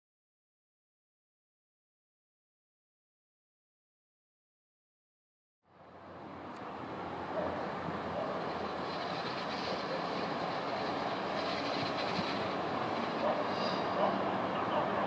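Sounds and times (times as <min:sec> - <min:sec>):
train wheels rumbling on rails: 0:07.0 - 0:15.0.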